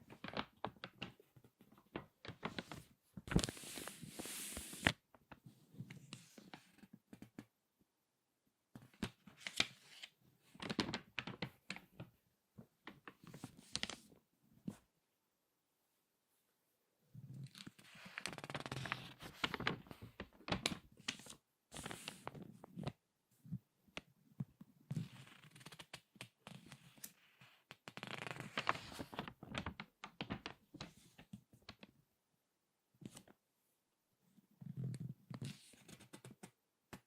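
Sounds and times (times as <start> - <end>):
magazine pages crinkling: 0.1 - 5.0, 17.6 - 22.4, 27.8 - 30.9.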